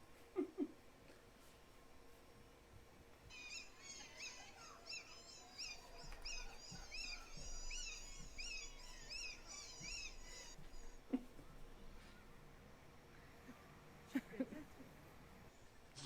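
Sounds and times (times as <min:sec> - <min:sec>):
animal squeaking: 0:03.3 - 0:11.1.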